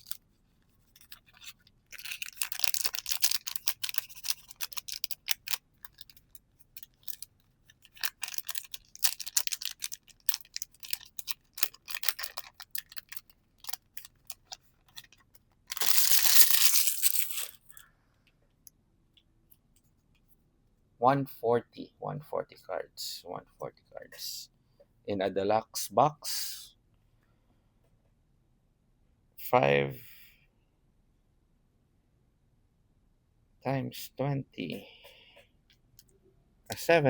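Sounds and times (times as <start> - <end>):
card packs crinkling and rustling: 1.0 - 17.7.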